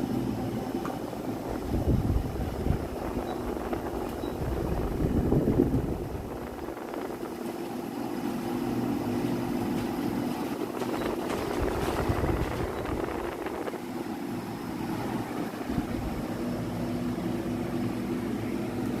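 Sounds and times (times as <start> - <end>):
air conditioner hum: 0.0 - 19.0
rushing airflow: 1.3 - 7.5, 10.6 - 18.0.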